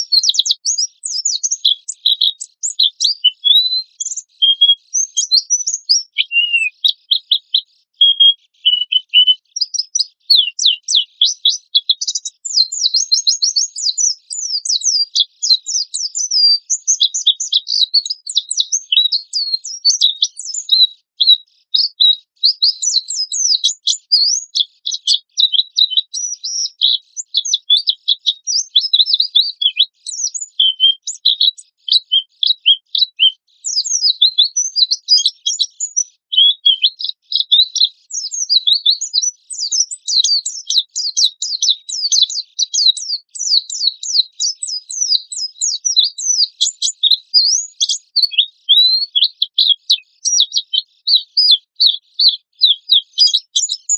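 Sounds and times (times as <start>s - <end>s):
bird rapid high-pitched chirping: 0.0s - 53.9s.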